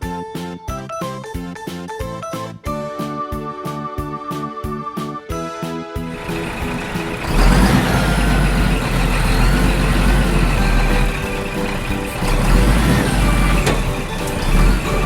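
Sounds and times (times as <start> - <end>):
heavy truck engine running: 6.1 - 15.0.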